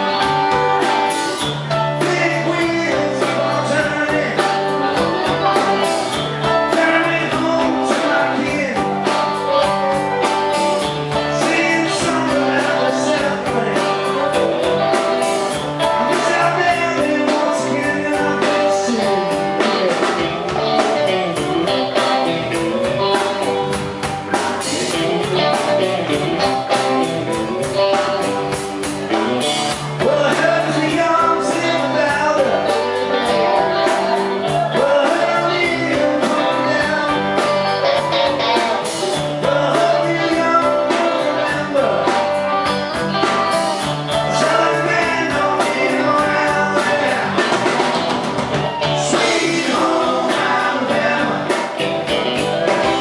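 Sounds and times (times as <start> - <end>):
live rock band playing: 0.0 - 53.0
person singing: 0.0 - 53.0.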